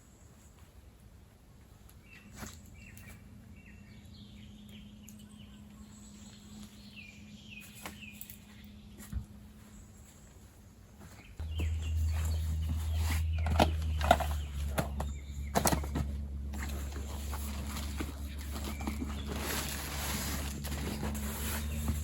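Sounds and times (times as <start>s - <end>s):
low steady hum: 0.0s - 22.0s
small birds chirping: 1.7s - 22.0s.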